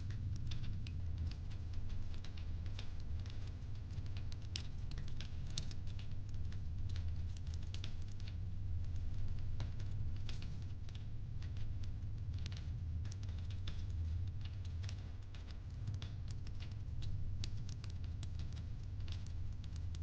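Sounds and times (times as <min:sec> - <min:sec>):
low rumble of fire: 0:00.0 - 0:20.0.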